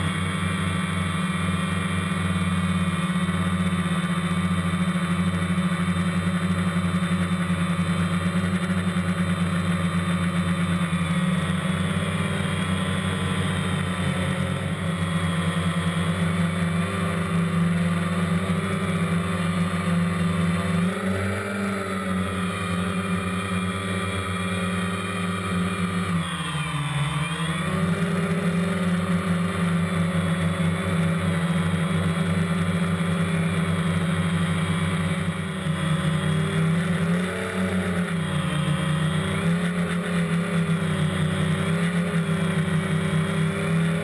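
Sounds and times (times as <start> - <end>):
drone propellers buzzing: 0.0 - 44.0.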